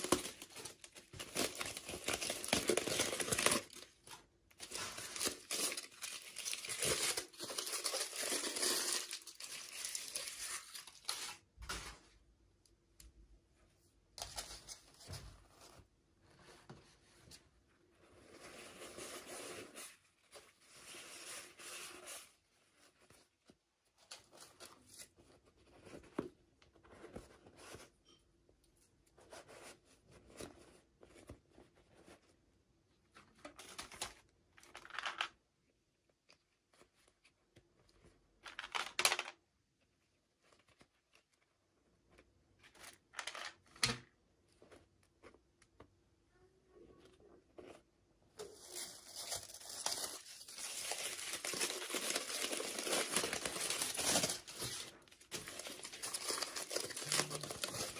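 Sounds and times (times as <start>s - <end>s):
packaging tearing and crinkling: 0.0s - 3.9s, 4.6s - 11.4s, 48.5s - 57.9s.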